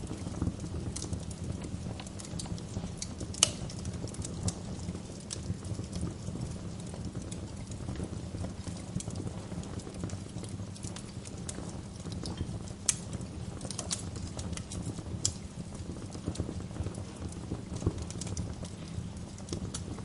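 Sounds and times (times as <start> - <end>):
wood fire crackling: 0.0 - 20.0
sharp pops and snaps: 0.3 - 15.5.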